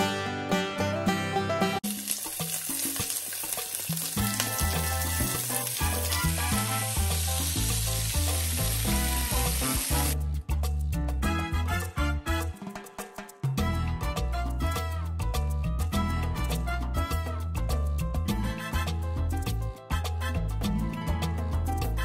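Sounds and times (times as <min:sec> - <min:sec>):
background music: 0:00.0 - 0:22.0
clams sizzling in grill pan: 0:01.8 - 0:10.2.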